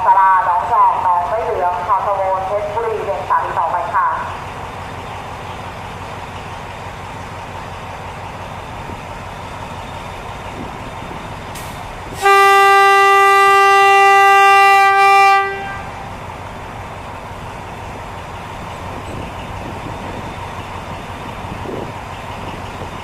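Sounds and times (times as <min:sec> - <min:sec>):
locomotive and train rumble: 0:00.0 - 0:23.0
locomotive horn blast: 0:12.1 - 0:16.2.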